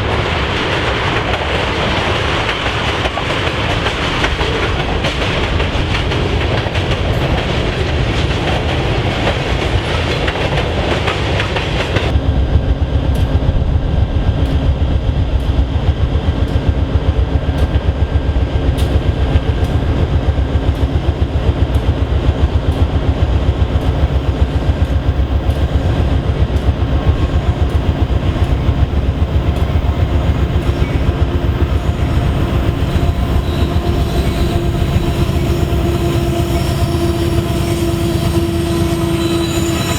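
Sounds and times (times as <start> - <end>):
deep rhythmic train rumble: 0.0 - 39.9
train wheels clacking on rails: 0.0 - 39.9.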